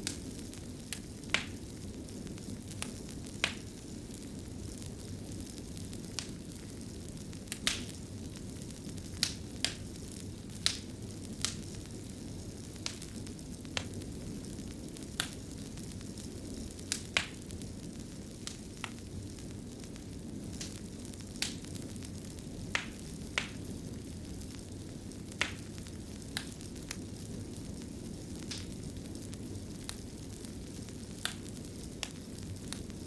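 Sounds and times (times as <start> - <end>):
fire crackling and popping: 0.0 - 33.0
fire low rumble: 0.0 - 33.0.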